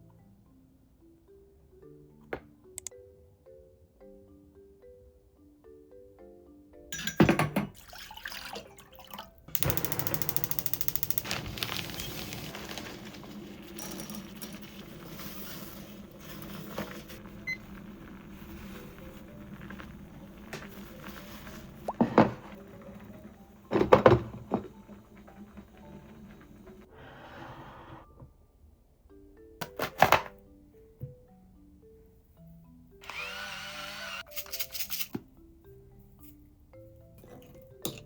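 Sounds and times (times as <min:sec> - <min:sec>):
cooking hiss: 0:09.6 - 0:28.0.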